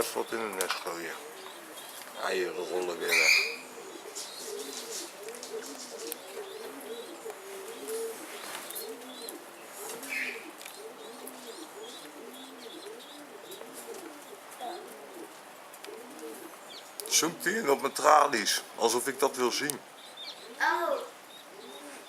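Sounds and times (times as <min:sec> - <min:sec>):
pigeons cooing: 0:00.0 - 0:22.0
short higher pigeon call: 0:03.0 - 0:14.0.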